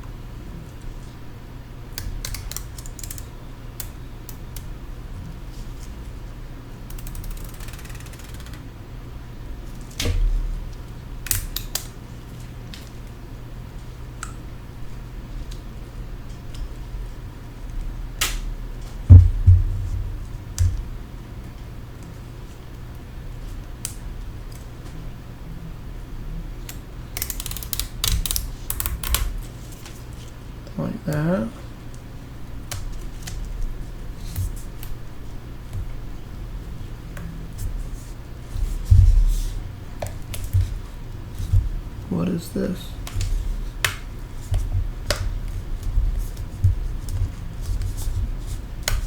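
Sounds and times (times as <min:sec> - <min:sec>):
sharp small clicks: 0:06.9 - 0:08.6, 0:26.7 - 0:29.3.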